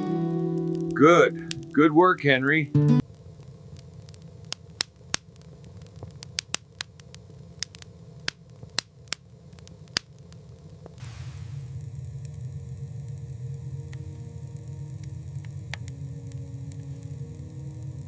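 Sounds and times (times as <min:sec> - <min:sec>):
small fire crackling and popping: 0:00.0 - 0:18.0
soft hiss: 0:00.0 - 0:18.0
low steady hum: 0:07.0 - 0:18.0.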